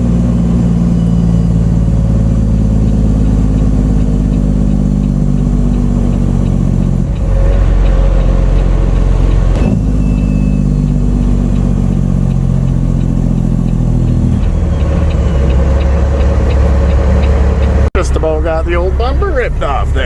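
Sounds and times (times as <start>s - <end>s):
diesel truck engine running: 0.0s - 20.0s.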